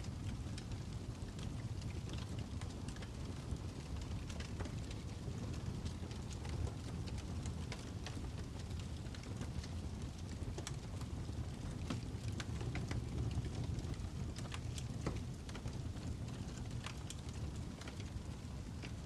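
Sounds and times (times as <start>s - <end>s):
fire crackling: 0.0s - 19.0s.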